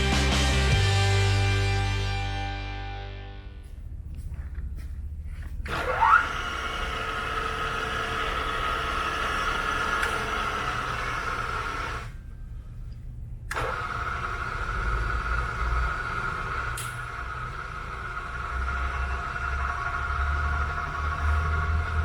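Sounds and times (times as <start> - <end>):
milling machine motor whining: 5.6 - 12.2, 13.5 - 22.0.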